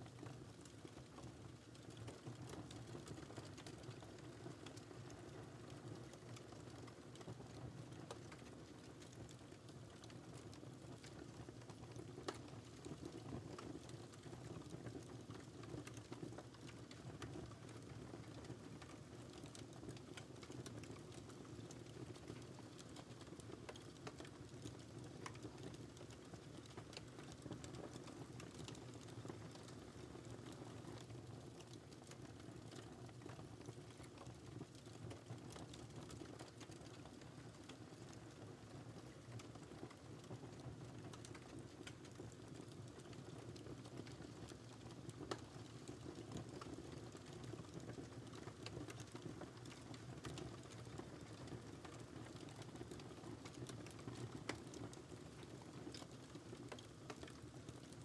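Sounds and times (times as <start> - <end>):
wood fire crackling: 0.1 - 58.0.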